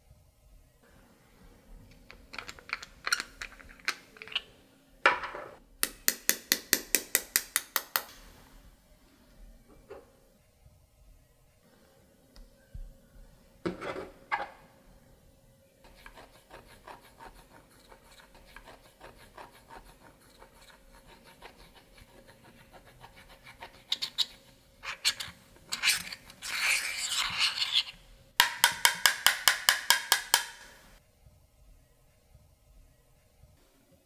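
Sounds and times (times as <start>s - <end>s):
rasping scrape: 15.8s - 28.0s.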